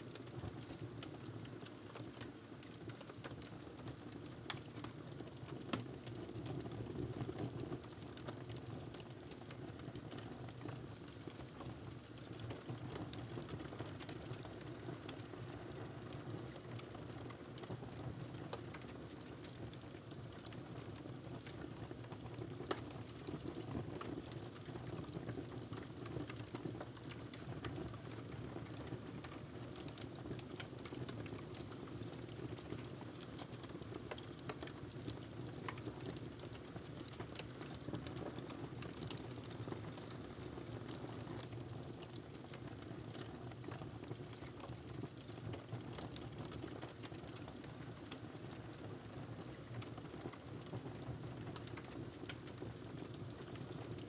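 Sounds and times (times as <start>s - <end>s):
fire pops and snaps: 21.4s - 23.2s.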